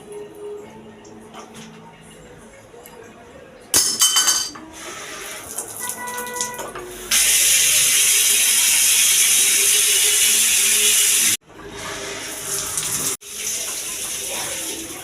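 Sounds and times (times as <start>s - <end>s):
water spraying from a tap: 4.8s - 15.0s.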